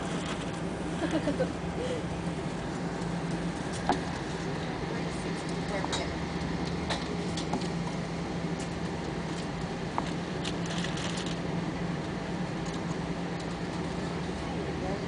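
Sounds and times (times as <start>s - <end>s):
airplane cabin hum: 0.0s - 15.0s
faint clicks and rustles: 8.6s - 11.5s.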